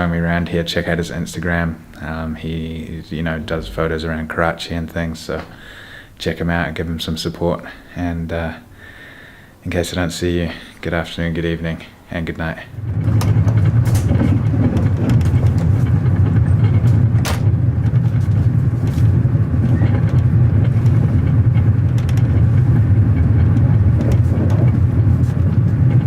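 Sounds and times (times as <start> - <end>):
moving vehicle rumble: 3.0 - 4.4, 12.7 - 26.0
clicks and rattles: 12.9 - 26.0.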